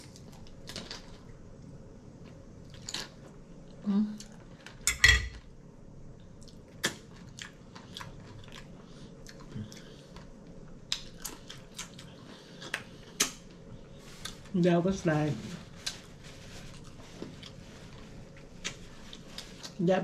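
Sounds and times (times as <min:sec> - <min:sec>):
crunchy chewing: 0:06.3 - 0:14.5, 0:15.6 - 0:19.8.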